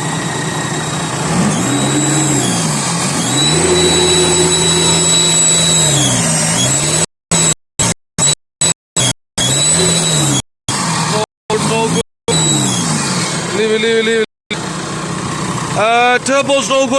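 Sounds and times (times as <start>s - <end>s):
diesel engine revving: 1.0s - 7.0s
turbocharger whistle: 1.2s - 7.5s, 9.0s - 10.4s, 12.3s - 13.4s.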